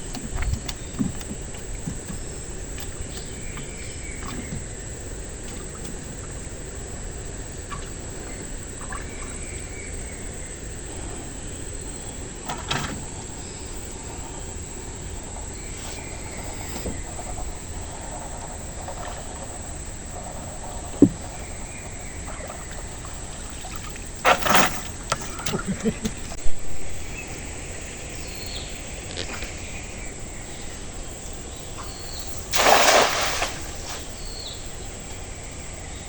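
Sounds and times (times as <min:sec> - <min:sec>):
background hiss: 0:00.0 - 0:36.0
insect drone: 0:00.0 - 0:36.0
knocks: 0:20.9 - 0:21.4.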